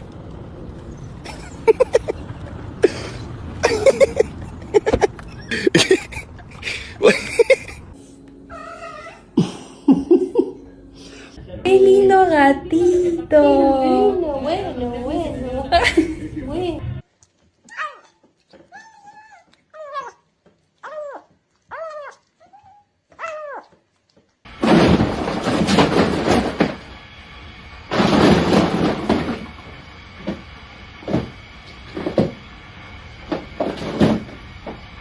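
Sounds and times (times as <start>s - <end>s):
cat meowing: 8.5s - 9.3s.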